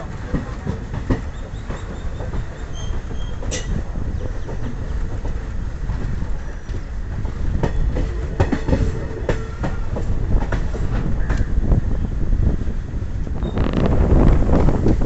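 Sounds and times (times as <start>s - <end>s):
wheels clacking over rail joints: 0.0s - 11.7s
train low rumble: 0.0s - 15.0s.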